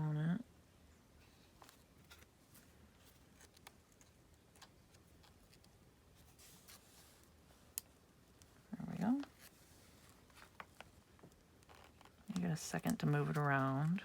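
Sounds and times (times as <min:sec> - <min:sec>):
paper rustle: 0:01.4 - 0:07.8.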